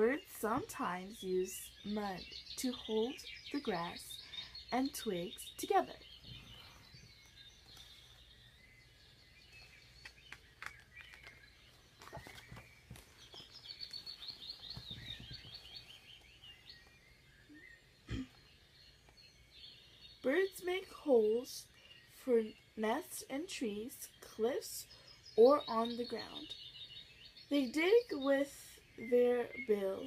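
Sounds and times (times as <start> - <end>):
birds chirping and tweeting: 0.0 - 30.0.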